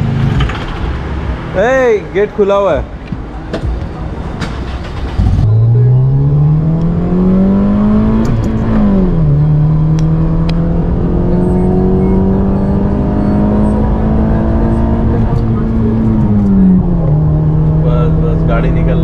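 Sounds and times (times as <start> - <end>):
car engine accelerating: 4.0 - 19.0.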